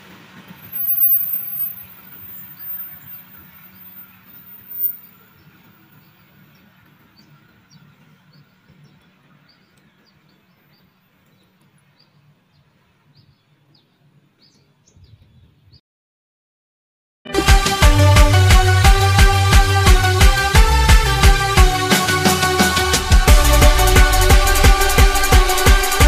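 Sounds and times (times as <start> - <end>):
distant train rumble: 0.0 - 8.2, 17.9 - 26.0
small birds chirping: 0.8 - 15.8.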